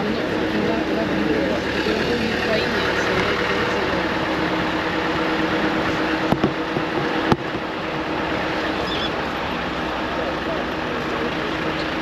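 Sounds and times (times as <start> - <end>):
engine running inside cab: 0.0 - 12.0
sharp knocks: 6.3 - 7.7.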